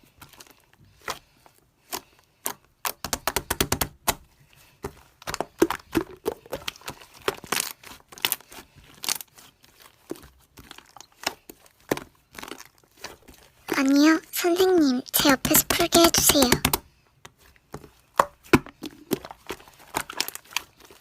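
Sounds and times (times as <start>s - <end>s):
slime crackling: 5.0s - 16.8s, 18.7s - 21.0s.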